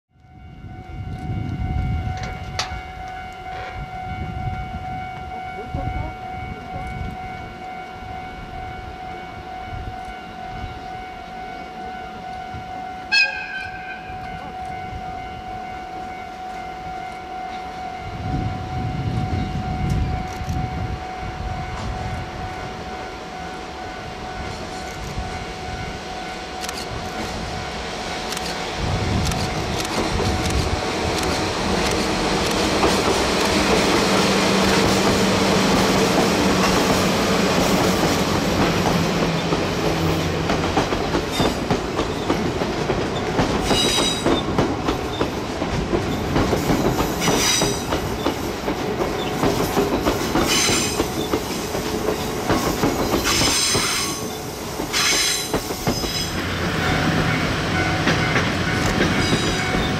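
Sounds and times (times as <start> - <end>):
diesel train engine hum: 0.2 - 59.9
wheels clacking on rails: 24.4 - 59.9.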